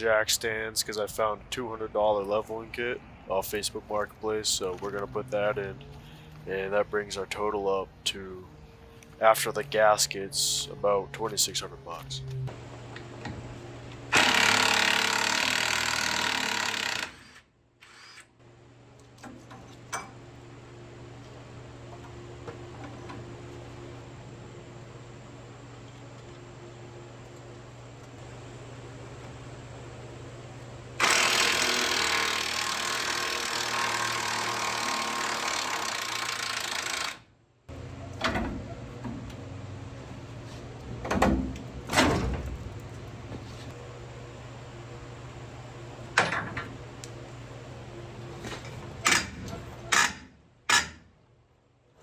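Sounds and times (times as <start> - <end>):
power tool running: 11.7 - 18.3, 31.0 - 37.9
impact wrench hammering: 14.1 - 17.3, 31.0 - 37.2, 49.0 - 51.0.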